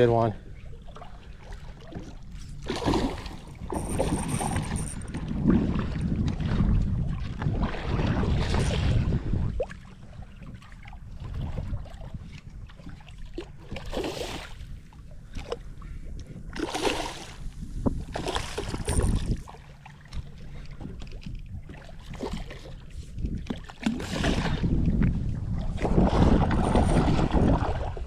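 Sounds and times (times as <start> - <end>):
water around a kayak: 0.0 - 28.0
wind rumble on microphone: 0.0 - 28.0.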